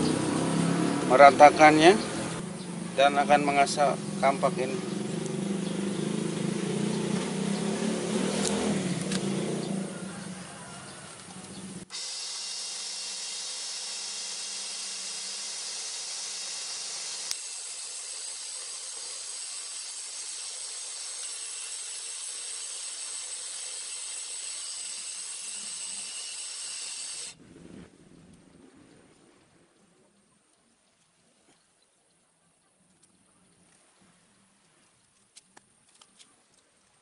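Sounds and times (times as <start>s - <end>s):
grinder hissing on metal: 11.8s - 27.4s.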